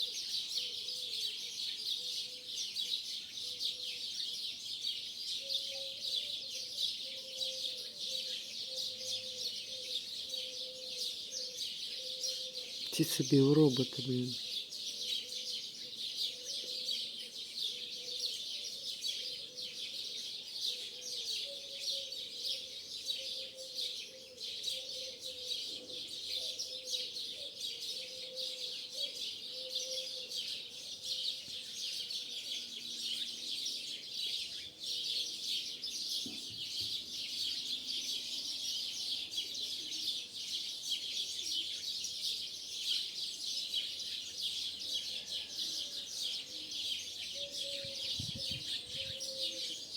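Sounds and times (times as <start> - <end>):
starlings chattering and whistling: 45.9 - 49.9.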